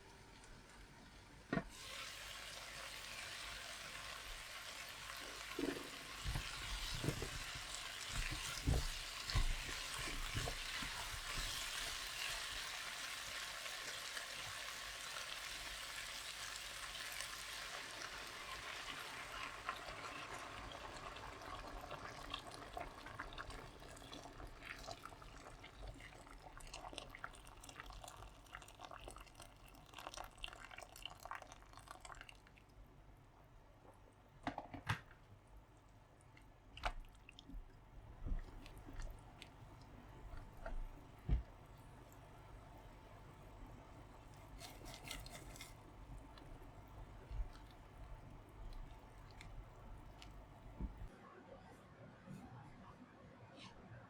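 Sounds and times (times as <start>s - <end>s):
food sizzling in a hot pan: 1.7s - 25.7s.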